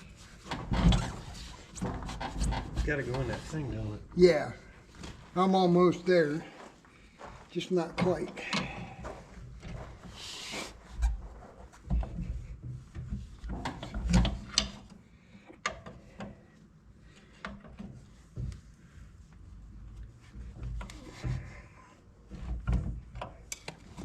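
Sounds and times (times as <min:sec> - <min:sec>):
knocks clicks and scraping of parts: 0:00.0 - 0:04.0, 0:07.8 - 0:18.8, 0:19.8 - 0:24.0.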